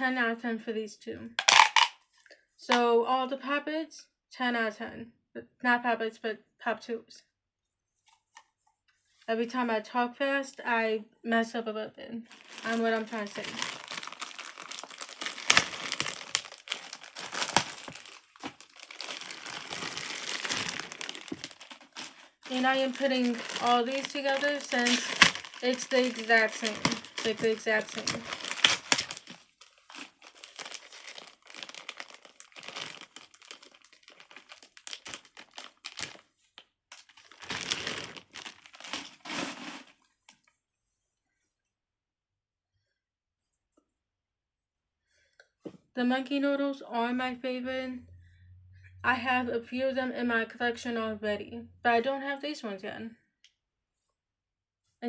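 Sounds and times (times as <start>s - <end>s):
plastic tubing crackling: 1.4s - 2.0s, 12.3s - 40.5s
plastic crinkling and rustling: 1.5s - 1.9s, 12.3s - 40.5s.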